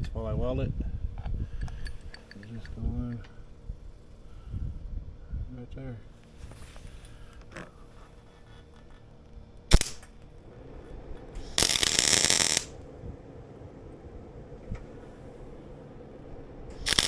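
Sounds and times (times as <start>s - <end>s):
welding arc crackling: 9.7s - 10.3s, 11.4s - 12.8s, 16.7s - 17.0s.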